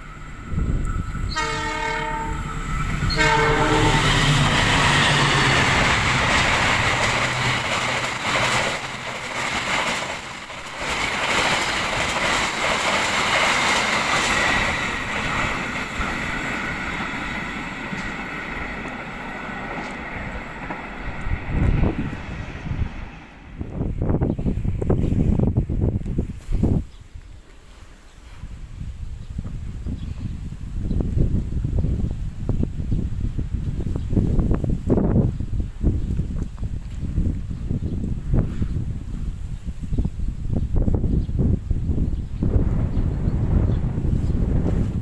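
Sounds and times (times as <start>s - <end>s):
train air horn blasts: 0.6s - 4.4s
train wheels clattering on rails: 0.9s - 23.6s.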